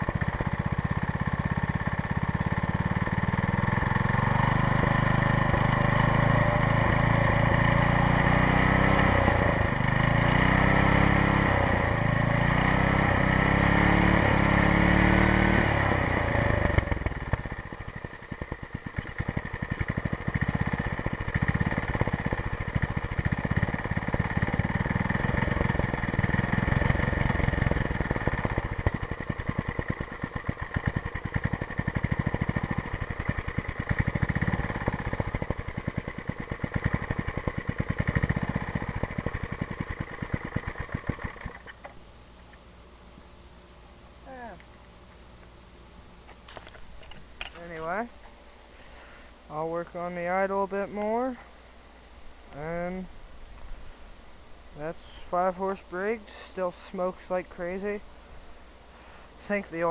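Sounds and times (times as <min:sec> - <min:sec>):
small engine revving and idling: 0:00.0 - 0:42.0, 0:54.8 - 0:58.0.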